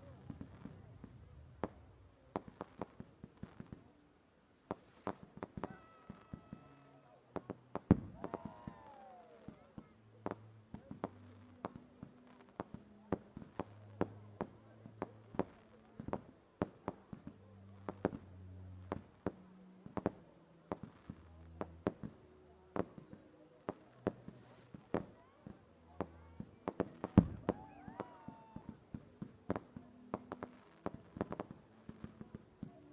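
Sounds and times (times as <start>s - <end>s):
fireworks cracking and banging: 0.0s - 4.0s, 4.6s - 32.9s.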